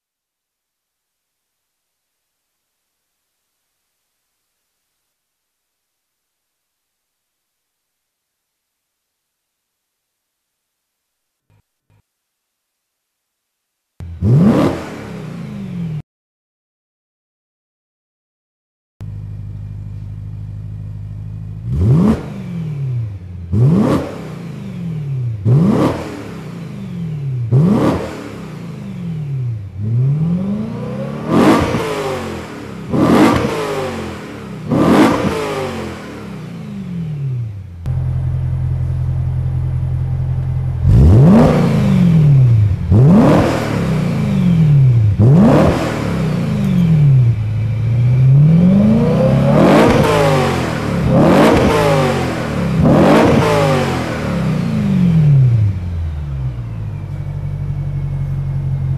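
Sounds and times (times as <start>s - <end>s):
car engine idling and revving: 14.0s - 16.0s, 19.0s - 58.9s.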